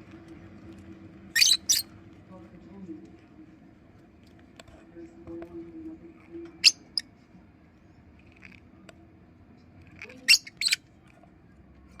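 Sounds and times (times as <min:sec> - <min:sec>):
lovebirds squeaking: 0:01.3 - 0:01.9, 0:06.6 - 0:07.1, 0:09.8 - 0:10.9.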